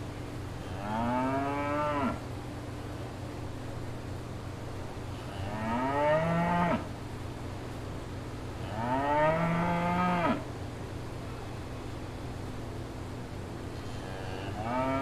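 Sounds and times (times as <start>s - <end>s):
cow mooing: 0.8s - 2.2s, 8.6s - 10.4s, 14.5s - 15.0s.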